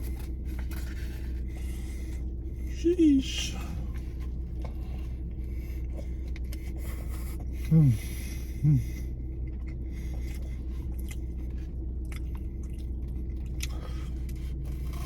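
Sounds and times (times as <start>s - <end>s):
steady low hum: 0.0s - 15.0s
person chewing food: 3.7s - 15.0s.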